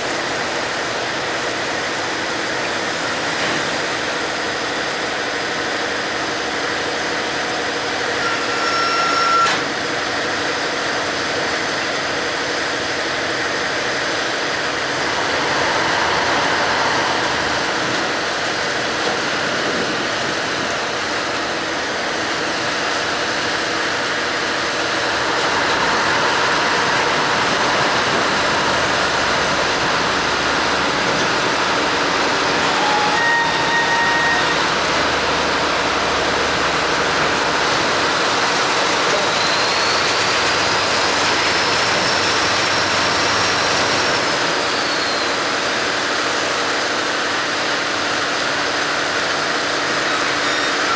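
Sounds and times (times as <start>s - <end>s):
short high tone: 8.2s - 9.6s.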